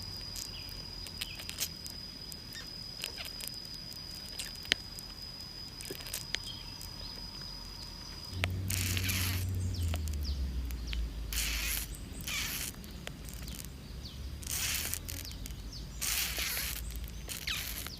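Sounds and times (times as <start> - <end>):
grubs chewing inside palm trunk: 0.0 - 17.9
low rumble: 6.5 - 14.5.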